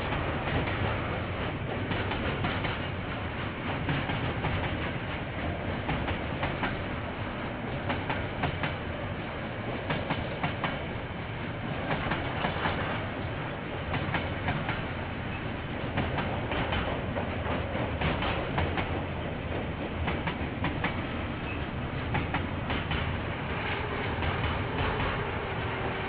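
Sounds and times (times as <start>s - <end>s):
train rumbling past: 0.0s - 26.0s
wheels clicking over rail joints: 11.8s - 25.4s.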